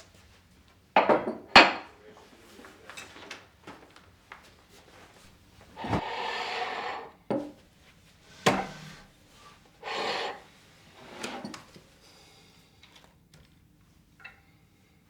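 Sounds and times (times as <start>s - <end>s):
household things sliding: 5.6s - 7.2s, 8.2s - 11.7s.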